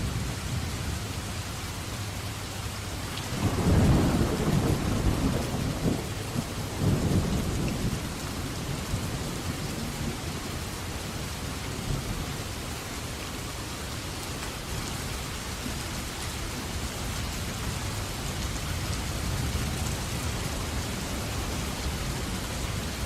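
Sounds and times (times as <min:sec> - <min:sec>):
low rumble of thunder: 0:00.0 - 0:02.1, 0:03.1 - 0:12.7, 0:16.8 - 0:23.0
rain falling: 0:00.0 - 0:23.0.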